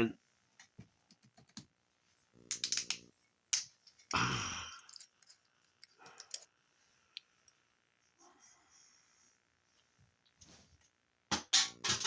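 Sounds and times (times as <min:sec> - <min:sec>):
objects clicking and tapping: 0:04.8 - 0:06.5, 0:11.3 - 0:12.0.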